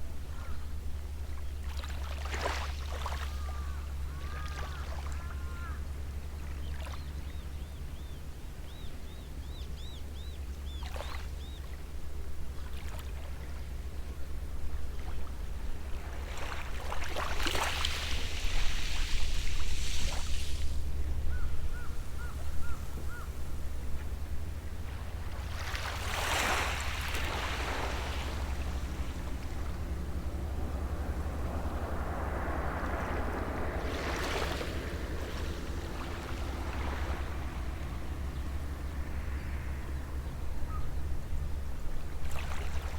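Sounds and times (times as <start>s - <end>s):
sea waves washing onto shore: 15.5s - 21.3s, 23.1s - 40.0s
low rumble: 18.2s - 42.9s.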